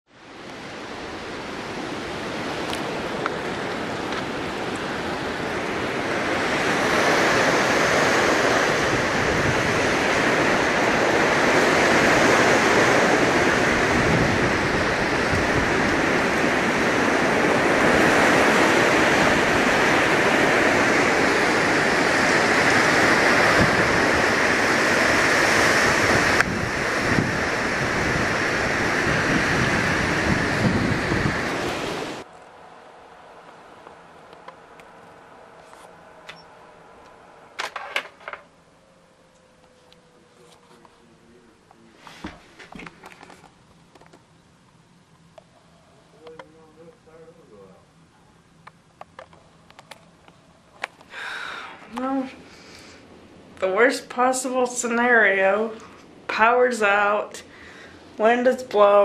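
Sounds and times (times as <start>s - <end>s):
strong wind gusting: 0.2s - 37.6s.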